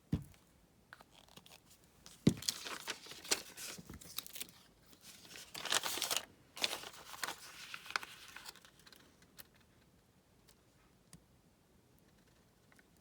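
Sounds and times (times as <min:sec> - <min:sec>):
paper rustling and crinkling: 0:01.0 - 0:09.6.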